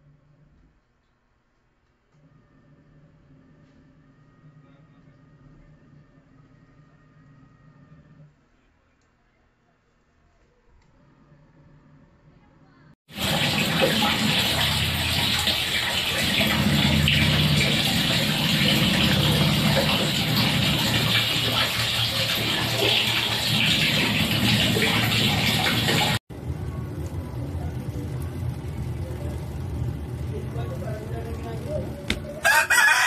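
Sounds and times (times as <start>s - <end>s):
water rushing in washing machine: 13.1s - 32.4s
low hum: 23.4s - 32.4s.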